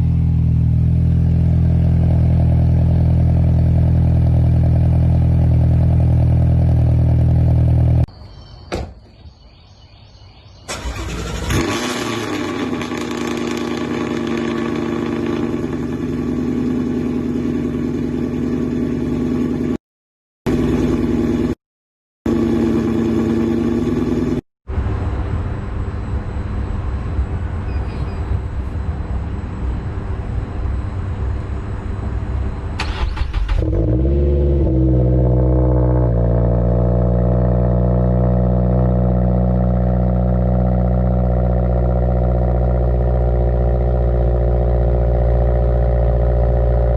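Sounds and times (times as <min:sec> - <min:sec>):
car engine running: 0:00.0 - 0:08.1, 0:10.7 - 0:19.8, 0:20.5 - 0:21.6, 0:22.3 - 0:25.0, 0:31.6 - 0:46.9
car engine cranking and revving: 0:10.7 - 0:19.8, 0:32.8 - 0:46.9.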